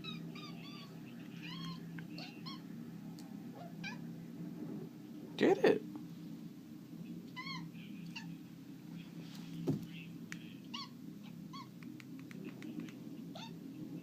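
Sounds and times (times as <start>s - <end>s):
cat chirping meows: 0.0s - 2.7s, 10.7s - 11.8s, 13.3s - 13.6s
low room hum: 0.0s - 14.0s.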